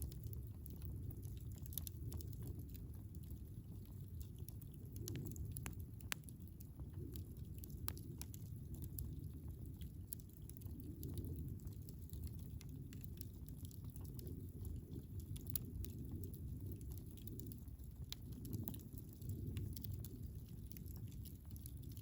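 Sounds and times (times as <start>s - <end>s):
campfire crackling and popping: 0.0s - 22.0s
fire low rumble: 0.0s - 22.0s.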